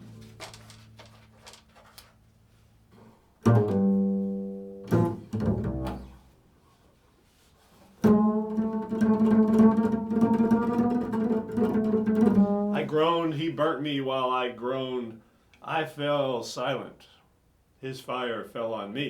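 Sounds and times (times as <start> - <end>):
low string instrument notes: 3.4 - 6.4, 8.0 - 13.6.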